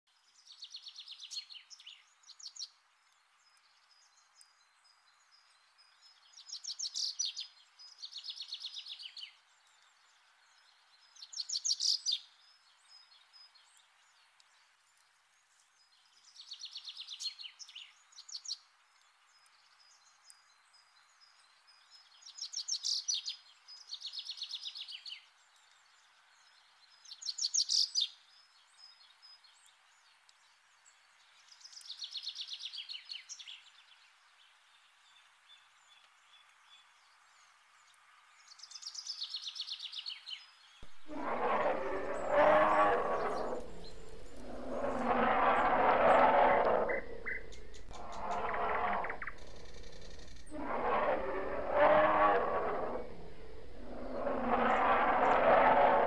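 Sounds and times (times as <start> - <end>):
songbird trilling: 46.8 - 50.6.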